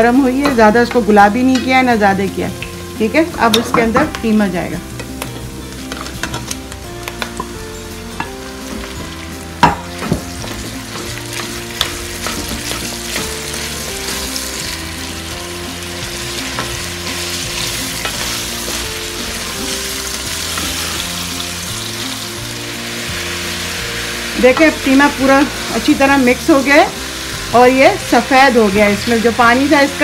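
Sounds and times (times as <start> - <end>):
meat sizzling in hot oil: 1.1 - 30.0
spatula knocking on pot: 9.6 - 13.3.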